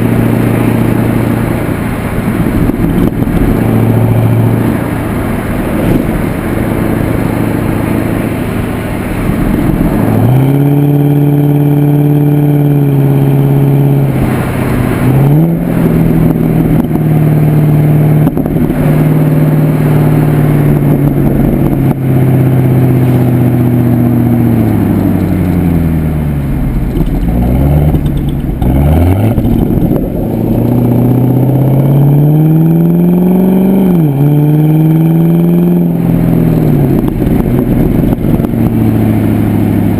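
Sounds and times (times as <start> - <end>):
car exhaust note while driving: 0.0 - 39.9.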